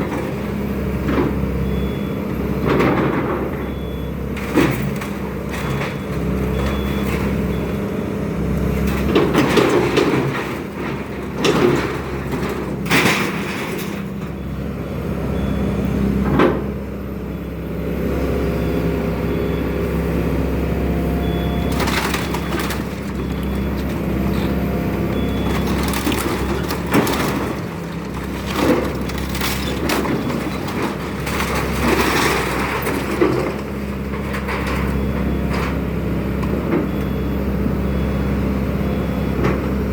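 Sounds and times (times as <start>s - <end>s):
excavator engine running: 0.0s - 39.9s
building material cracking and crashing: 21.7s - 34.8s.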